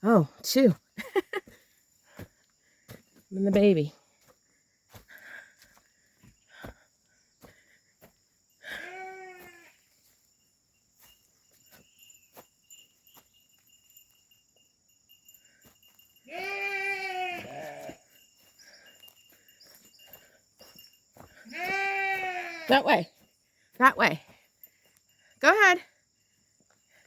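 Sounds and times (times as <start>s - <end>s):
sheep bleating: 8.7s - 9.7s, 16.3s - 18.0s, 21.4s - 22.9s.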